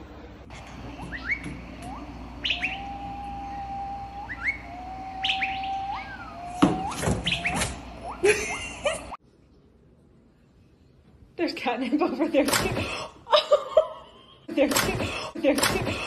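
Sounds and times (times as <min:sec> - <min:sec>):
bird chirping and whistling: 0:00.9 - 0:08.8.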